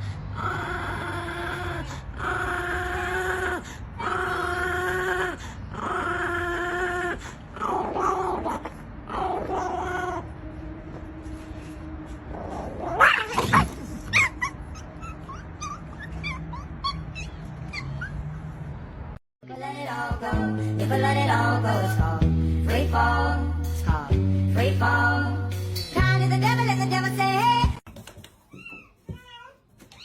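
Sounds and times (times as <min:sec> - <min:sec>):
dog whining: 0:00.4 - 0:10.4, 0:12.3 - 0:18.4, 0:28.5 - 0:30.0
dog yipping: 0:12.8 - 0:18.4, 0:28.5 - 0:30.0.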